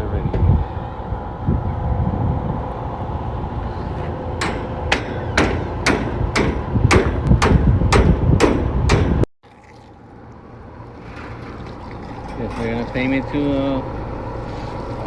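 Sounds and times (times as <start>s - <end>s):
mechanical hum: 0.0s - 15.0s
sharp rhythmic knocks: 4.4s - 9.3s.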